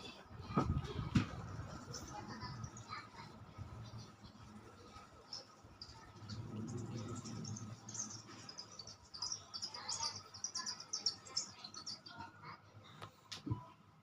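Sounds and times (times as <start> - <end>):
birds chirping: 1.7 - 12.3.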